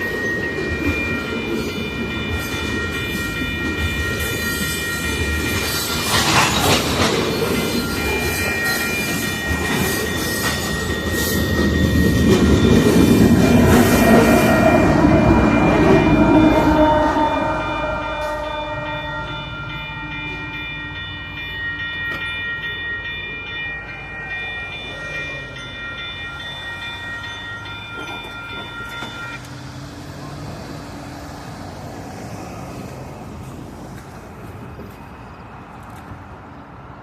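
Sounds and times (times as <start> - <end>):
freight train rumble: 0.0 - 37.0
train air horn: 13.4 - 20.2.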